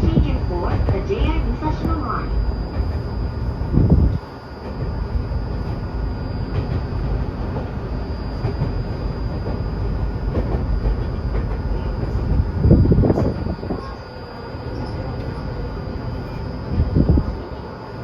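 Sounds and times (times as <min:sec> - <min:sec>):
thin high whine: 0:00.0 - 0:18.0
train wheels rumbling on track: 0:00.0 - 0:18.0.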